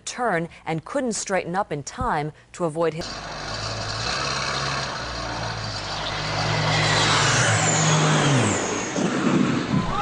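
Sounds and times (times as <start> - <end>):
engine running: 3.0 - 9.8.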